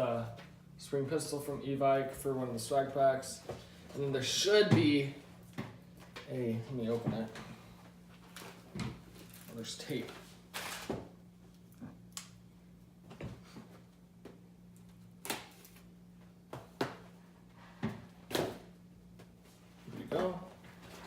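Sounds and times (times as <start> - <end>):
wrapping rustling: 8.1 - 10.9
packing tape ripping: 10.5 - 11.0, 15.2 - 15.9.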